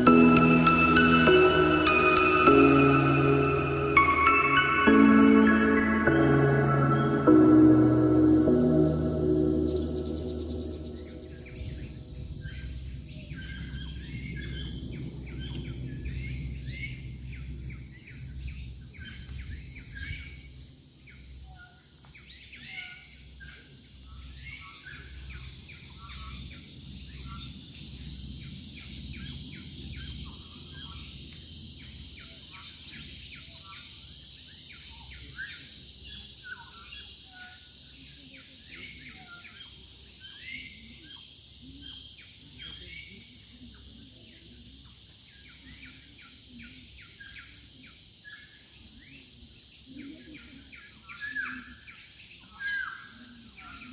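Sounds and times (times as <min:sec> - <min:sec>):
steady high hiss: 0:00.0 - 0:13.1
wild birds chirping: 0:00.0 - 0:20.4
low rumble: 0:07.3 - 0:13.3.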